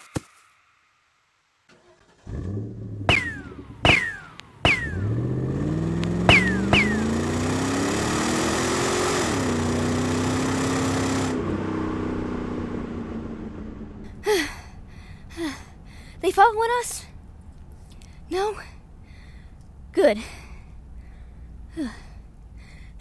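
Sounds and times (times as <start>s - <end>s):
car engine revving: 2.0s - 14.2s
gunshots with ricochet whine: 3.0s - 7.7s.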